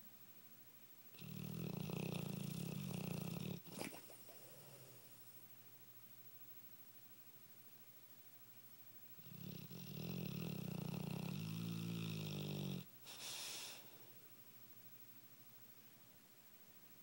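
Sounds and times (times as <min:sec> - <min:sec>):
dog snoring: 0:01.1 - 0:05.1, 0:09.2 - 0:13.8
breathy puff: 0:13.1 - 0:14.0.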